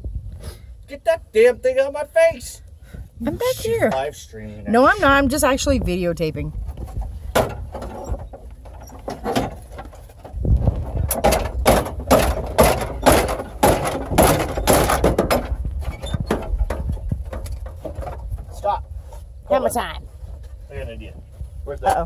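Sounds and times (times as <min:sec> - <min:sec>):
dashboard cracking and scraping: 0:06.6 - 0:18.7.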